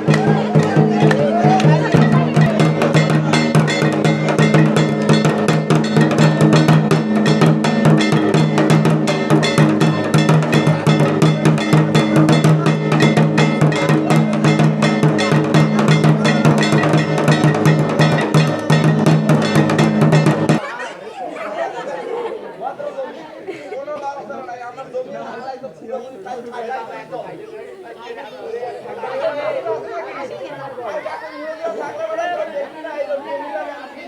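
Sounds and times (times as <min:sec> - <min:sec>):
dance music: 0:00.0 - 0:20.6
fast dense drumming: 0:00.0 - 0:20.6.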